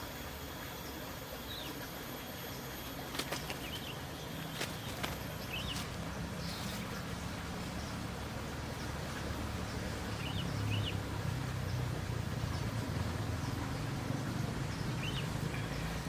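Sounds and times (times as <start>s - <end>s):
sharp clicks or flaps: 3.1s - 3.8s.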